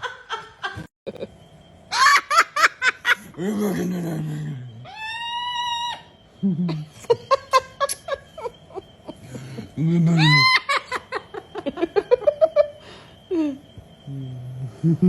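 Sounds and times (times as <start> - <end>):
lower voice: 3.2 - 4.9.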